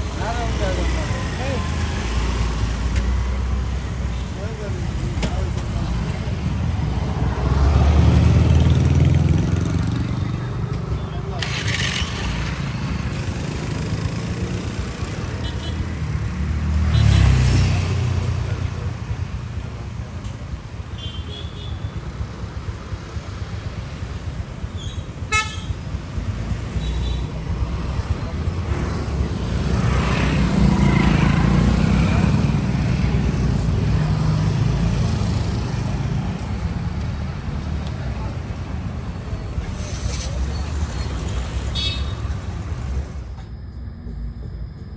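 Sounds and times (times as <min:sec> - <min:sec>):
road and traffic noise: 0:00.0 - 0:44.9
vehicle engine rumbling: 0:00.0 - 0:44.9
louder engine passing: 0:06.3 - 0:15.4, 0:27.3 - 0:38.9.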